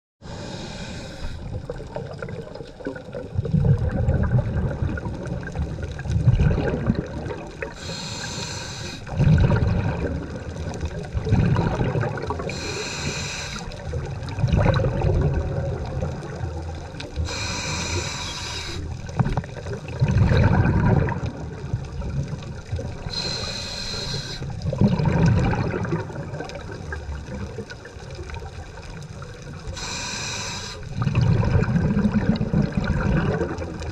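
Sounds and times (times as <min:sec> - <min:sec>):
regulator hiss on inhale: 0:00.2 - 0:01.6, 0:07.8 - 0:09.1, 0:12.4 - 0:13.8, 0:17.2 - 0:19.0, 0:23.0 - 0:24.6, 0:29.7 - 0:31.0
exhaled bubbles burbling: 0:01.4 - 0:08.2, 0:09.0 - 0:30.1, 0:30.9 - 0:33.9.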